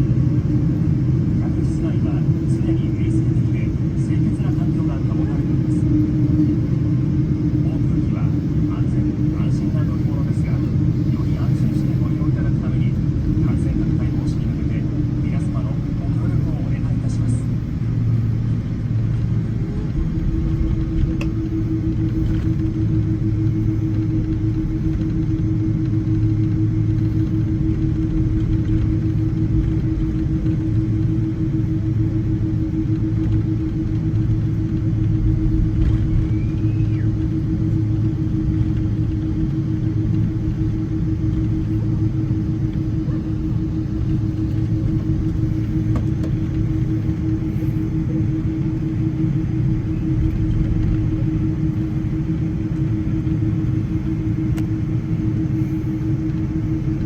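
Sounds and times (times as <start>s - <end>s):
aircraft cabin rumble: 0.0s - 57.0s
constant low hum: 0.0s - 57.0s.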